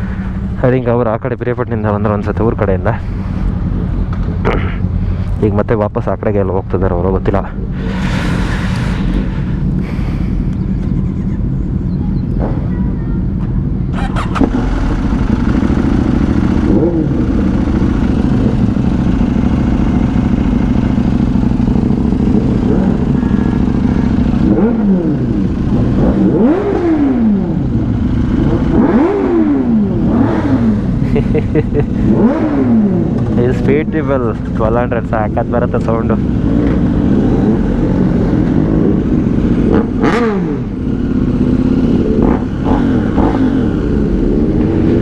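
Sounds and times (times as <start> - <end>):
road and wind noise: 0.0 - 45.0
motorcycle engine revving: 13.7 - 45.0.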